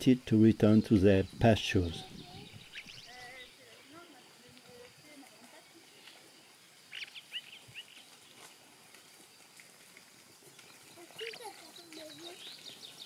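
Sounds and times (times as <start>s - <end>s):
small bird chirping: 0.6s - 4.3s, 6.8s - 8.5s, 10.5s - 13.0s.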